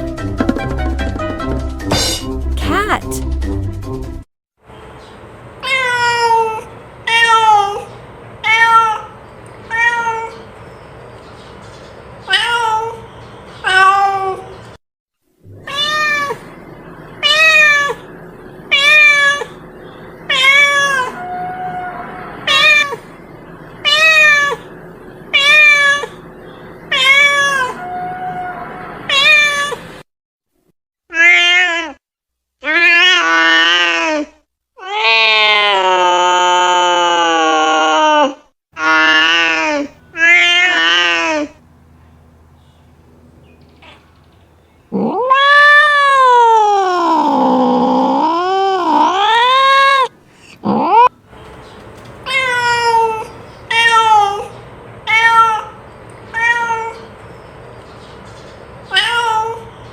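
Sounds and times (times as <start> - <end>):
faint background noise: 2.6 - 3.2
cat meowing: 38.8 - 41.5, 44.9 - 51.1, 55.1 - 57.0.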